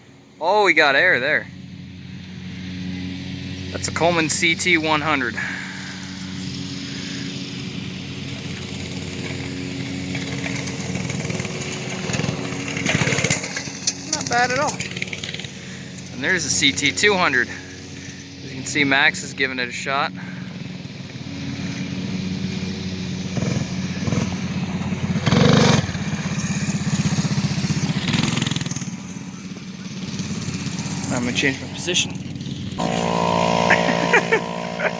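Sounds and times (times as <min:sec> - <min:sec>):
small minibike engine running: 0:02.0 - 0:34.9
loud rush of noise: 0:32.6 - 0:34.9.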